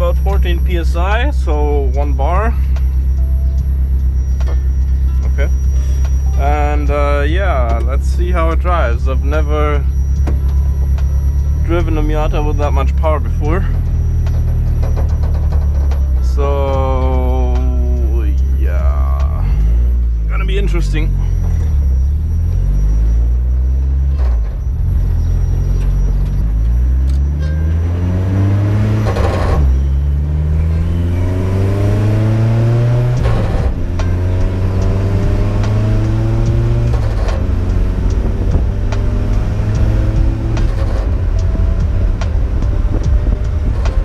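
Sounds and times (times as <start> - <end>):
exhaust pops and crackles: 0.0 - 18.6, 28.9 - 44.0
car engine accelerating: 0.0 - 44.0.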